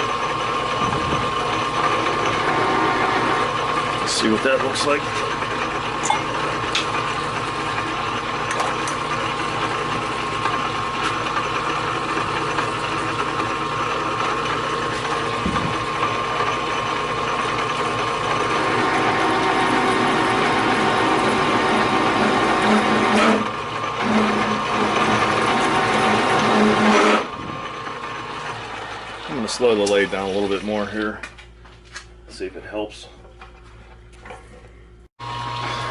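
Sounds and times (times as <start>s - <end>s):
metal lathe machining: 0.0s - 31.2s
cutting bit chattering: 11.6s - 30.6s.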